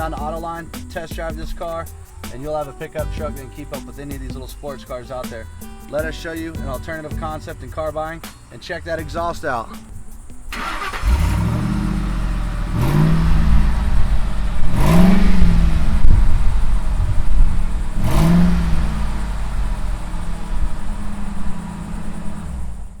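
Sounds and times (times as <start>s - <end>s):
car engine revving: 9.3s - 23.0s.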